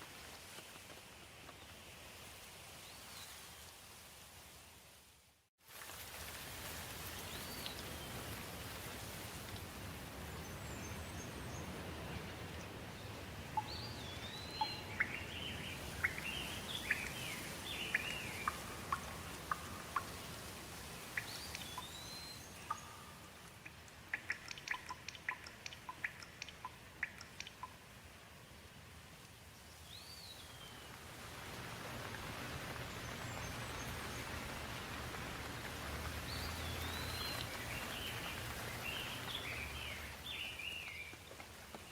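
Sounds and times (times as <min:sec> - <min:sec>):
light rain hissing: 0:00.0 - 0:41.9
birds singing: 0:12.6 - 0:20.2, 0:21.2 - 0:23.4, 0:36.2 - 0:41.2.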